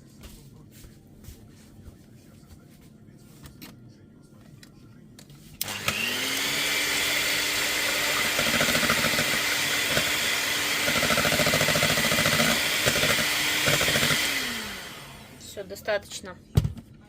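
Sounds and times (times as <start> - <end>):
electric mixer whisking: 5.6 - 15.4
mixer rattling: 5.6 - 15.4.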